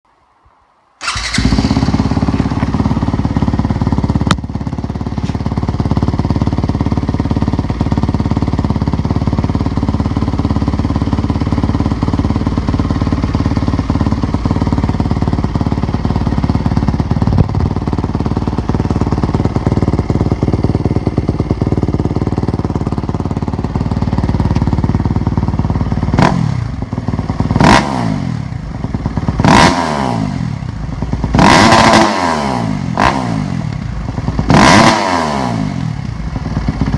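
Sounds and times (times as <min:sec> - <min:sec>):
motorcycle engine idling and revving: 0:01.0 - 0:36.9.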